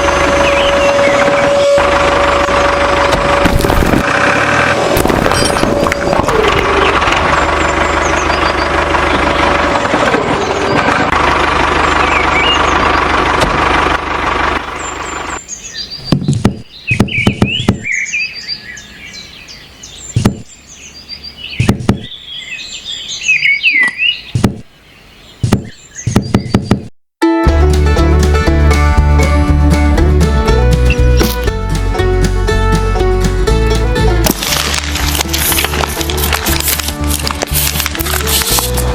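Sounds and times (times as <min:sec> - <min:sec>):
birds chirping: 0:00.0 - 0:03.1, 0:05.3 - 0:13.3, 0:14.3 - 0:26.9
sharp knocks: 0:16.0 - 0:17.9, 0:20.2 - 0:20.5, 0:21.6 - 0:22.1, 0:24.4 - 0:24.7, 0:25.4 - 0:26.9.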